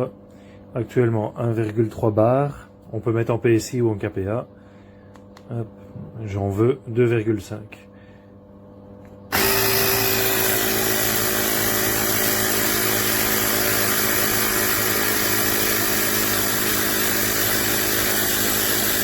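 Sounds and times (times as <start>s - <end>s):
air compressor motor buzzing: 9.3s - 19.0s.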